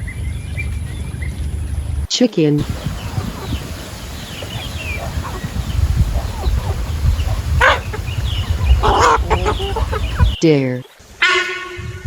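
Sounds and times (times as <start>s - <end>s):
chickens calling: 2.6s - 10.4s
steady low rumble: 2.6s - 10.4s.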